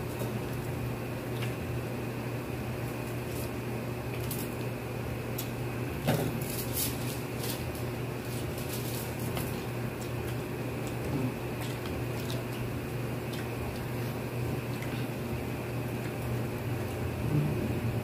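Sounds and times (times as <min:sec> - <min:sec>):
people chewing and lip-smacking: 0:09.3 - 0:15.2.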